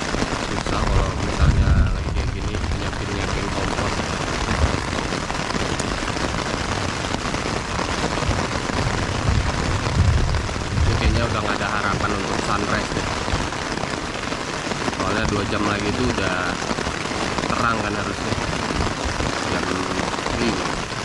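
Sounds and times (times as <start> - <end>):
low thunder rumble: 0.0 - 13.6
heavy rain with wind: 0.0 - 21.0.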